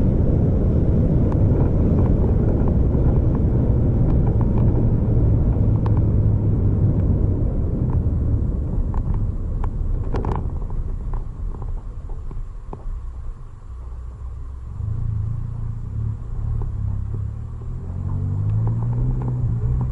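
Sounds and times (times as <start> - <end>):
vehicle rumbling: 0.0 - 19.9
light clicks and rattles: 8.8 - 13.5.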